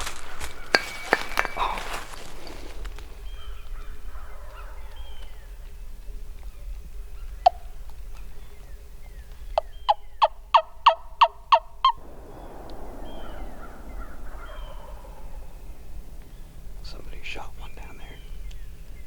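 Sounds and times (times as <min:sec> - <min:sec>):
sharp crack: 0:00.0 - 0:03.1, 0:11.8 - 0:19.0
faint songbirds calling: 0:00.0 - 0:10.6, 0:11.8 - 0:19.0.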